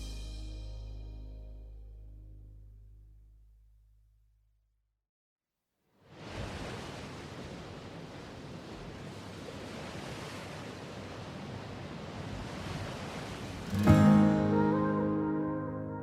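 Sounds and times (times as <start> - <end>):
ocean waves washing: 6.0 - 16.0.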